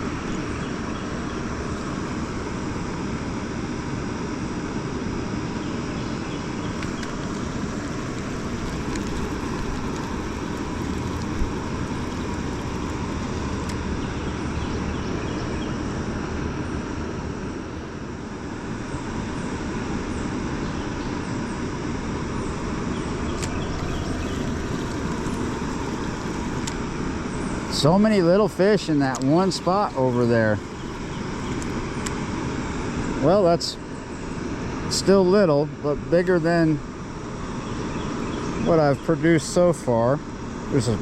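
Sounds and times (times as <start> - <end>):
water rushing through spillway: 6.7 - 14.0, 22.6 - 33.7.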